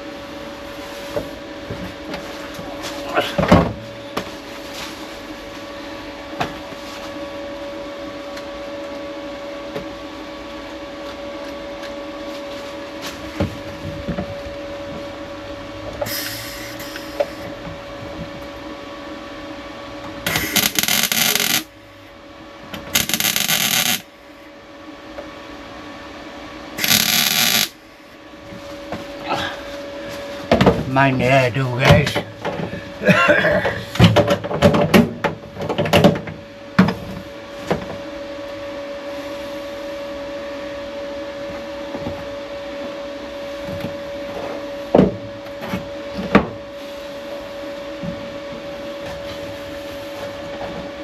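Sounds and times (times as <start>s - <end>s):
steady background hum: 0.0s - 51.0s
power tool running: 16.0s - 17.5s, 20.3s - 21.7s, 22.9s - 24.0s, 26.8s - 27.8s.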